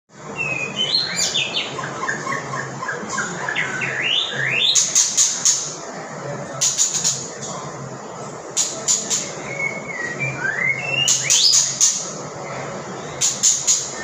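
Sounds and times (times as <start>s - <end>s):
songbird chirping and whistling: 0.3s - 5.7s, 8.7s - 12.1s.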